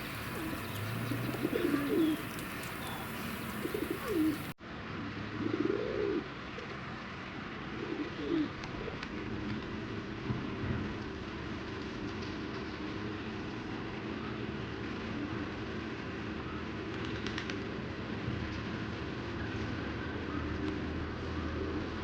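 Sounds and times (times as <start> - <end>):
pigeons cooing: 0.0 - 4.6, 5.4 - 6.3, 7.8 - 9.0
small birds chirping: 0.0 - 4.6.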